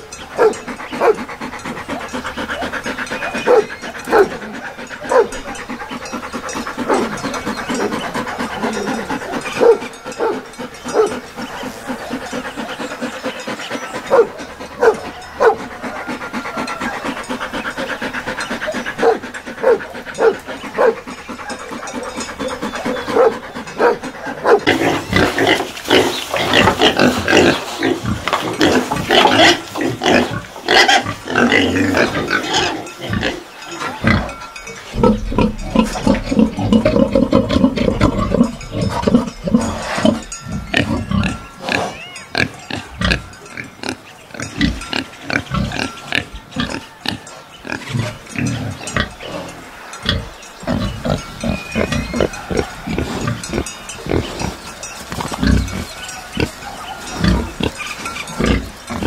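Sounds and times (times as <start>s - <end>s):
dog panting: 0.0s - 32.4s
pigs grunting and squealing: 0.0s - 59.0s.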